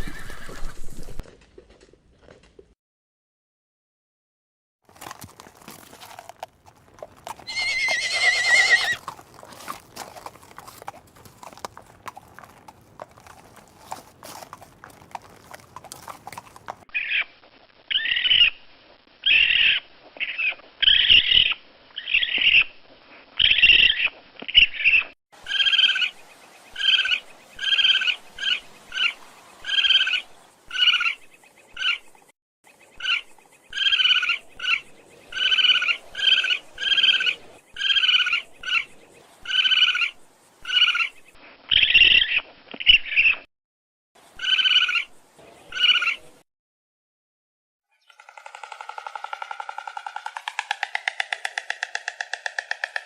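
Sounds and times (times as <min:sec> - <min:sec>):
horse whinnying: 0:00.0 - 0:00.9, 0:07.4 - 0:09.1.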